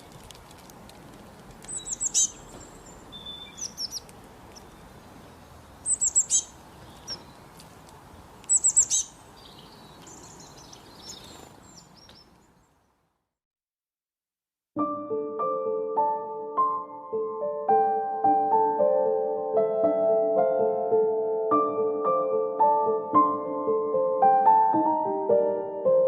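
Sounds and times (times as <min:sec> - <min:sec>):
steady outdoor hiss: 0:00.0 - 0:13.2
soft bird chirps: 0:01.7 - 0:13.0
songbird whistled phrases: 0:03.1 - 0:04.0, 0:05.9 - 0:06.5, 0:08.5 - 0:09.1.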